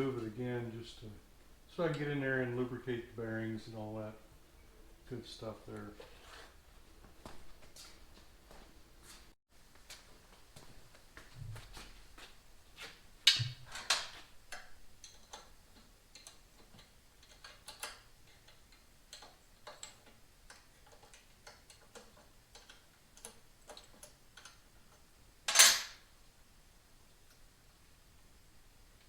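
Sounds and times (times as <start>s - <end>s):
tools clattering: 13.3s - 14.3s, 25.5s - 26.0s
hand tools clicking and tapping: 13.3s - 25.7s.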